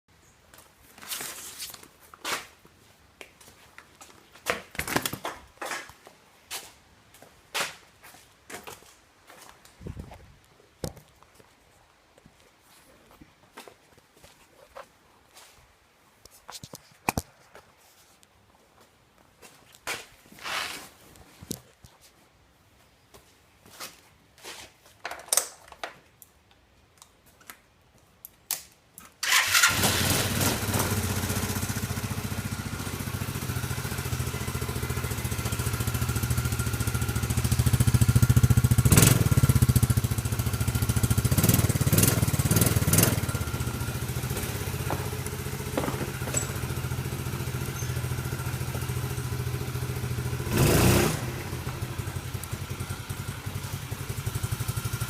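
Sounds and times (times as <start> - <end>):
small engine starting and running: 29.2 - 39.9.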